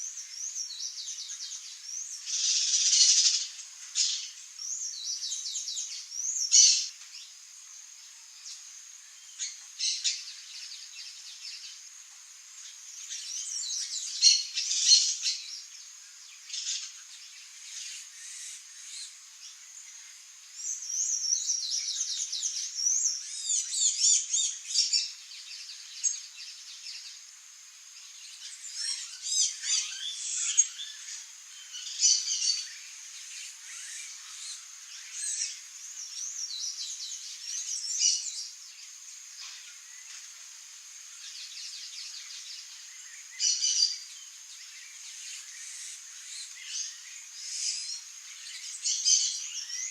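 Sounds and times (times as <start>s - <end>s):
rapid twittering chirps: 0.0s - 6.9s, 41.0s - 49.9s
songbirds chirping: 0.0s - 49.9s.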